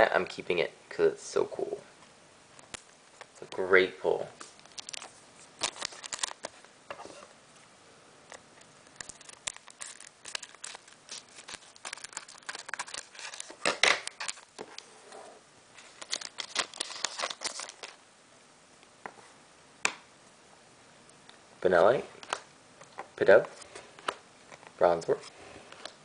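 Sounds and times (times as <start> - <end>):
foil crinkling: 4.4 - 6.6, 8.8 - 14.9, 15.8 - 18.0
cards rustling: 4.4 - 7.3, 8.3 - 15.0, 15.8 - 18.0, 22.2 - 26.0.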